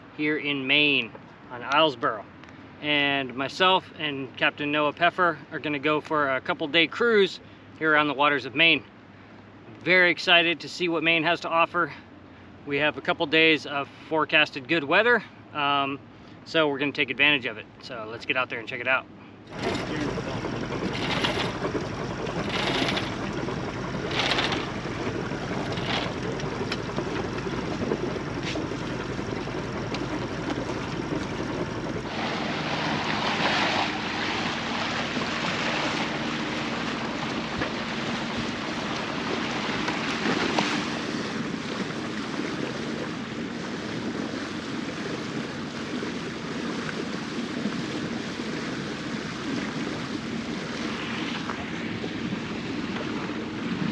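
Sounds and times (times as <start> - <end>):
boat engine hum: 0.0 - 53.9
water rushing along hull: 0.0 - 53.9.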